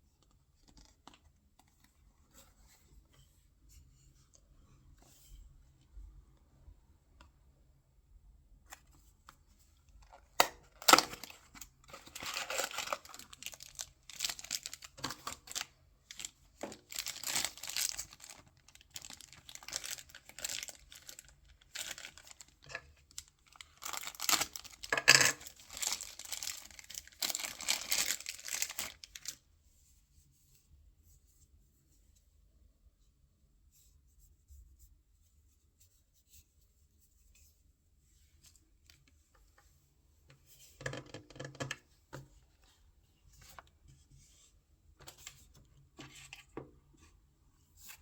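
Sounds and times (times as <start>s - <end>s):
packaging tearing and crinkling: 10.4s - 29.4s.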